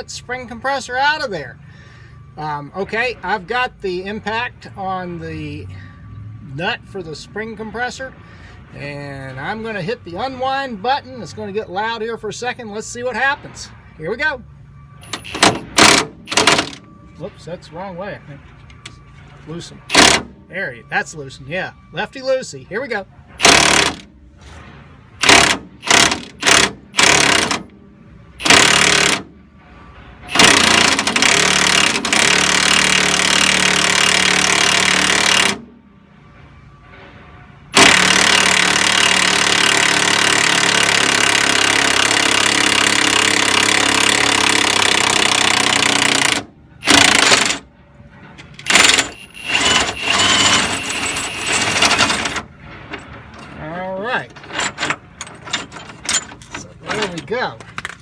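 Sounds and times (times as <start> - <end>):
impact wrench hammering: 15.0 - 16.8, 19.9 - 20.3, 23.4 - 24.1, 25.2 - 27.7, 28.4 - 29.3, 30.3 - 35.7, 37.8 - 47.6, 48.6 - 52.4.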